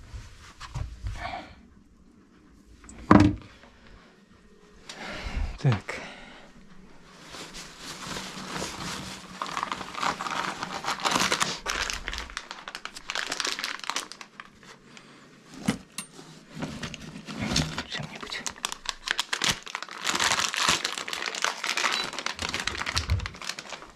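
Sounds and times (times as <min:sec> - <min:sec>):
material crinkling and rustling: 0:06.7 - 0:23.9.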